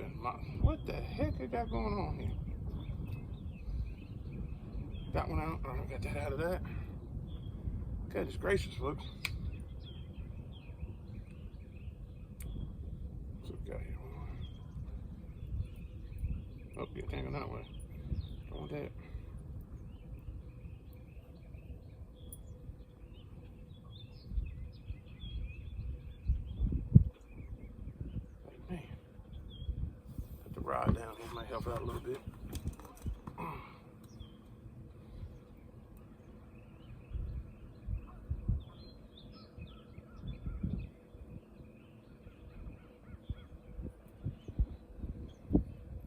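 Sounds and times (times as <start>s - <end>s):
birds chirping and singing: 0.0s - 46.0s.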